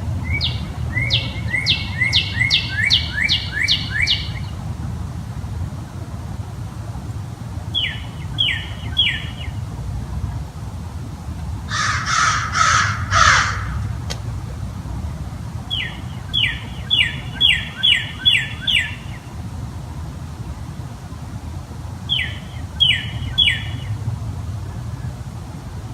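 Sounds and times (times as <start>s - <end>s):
small bird chirping: 0.2s - 4.5s, 7.8s - 9.6s, 15.7s - 19.3s, 22.1s - 23.9s
crow cawing: 11.7s - 14.0s.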